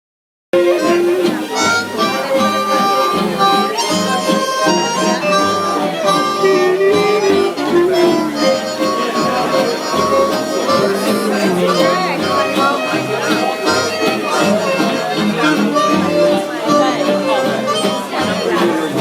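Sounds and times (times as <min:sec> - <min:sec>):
bass: 0:00.6 - 0:19.0
guitar: 0:00.6 - 0:19.0
woodwind melody: 0:00.6 - 0:19.0.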